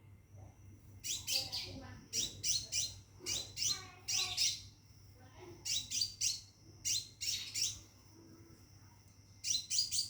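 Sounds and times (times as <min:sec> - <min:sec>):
bird chirping: 0:01.0 - 0:04.7, 0:05.6 - 0:07.9, 0:09.4 - 0:10.0.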